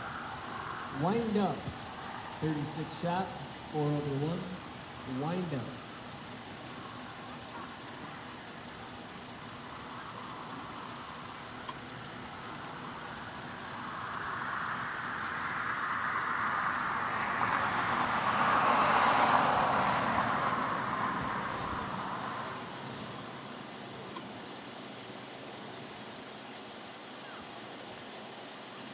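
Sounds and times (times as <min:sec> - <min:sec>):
vehicle driving past: 0:09.7 - 0:23.5.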